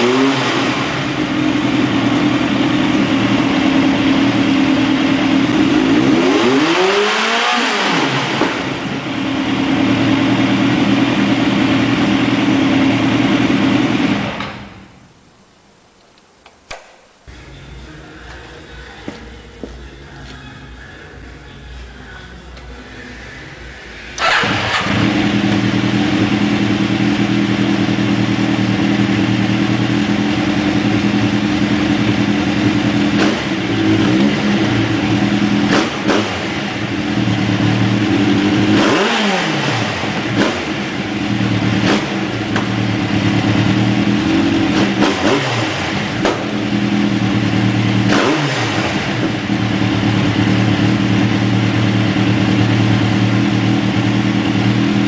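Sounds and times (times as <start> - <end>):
motorcycle engine idling and revving: 0.0 - 14.9, 22.6 - 55.0.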